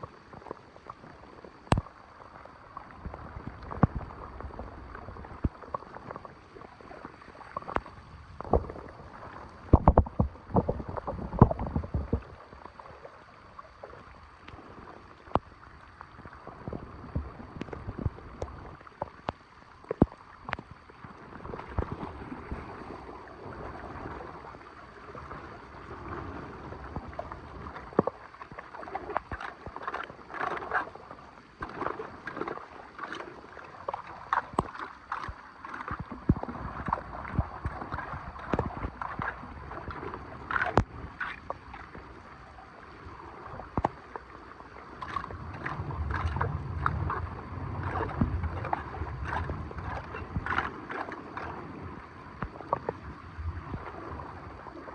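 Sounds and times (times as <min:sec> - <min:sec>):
floodwater sloshing and gurgling: 0:00.0 - 0:54.9
knocks and splashes: 0:09.7 - 0:12.3, 0:45.0 - 0:51.6
low rumble: 0:45.3 - 0:50.6.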